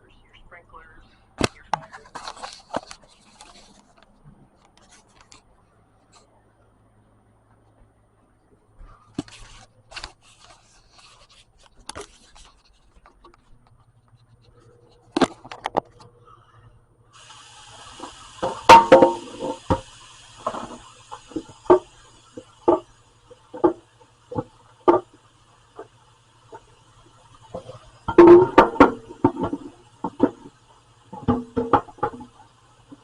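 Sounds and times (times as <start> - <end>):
tap running: 17.2 - 33.0.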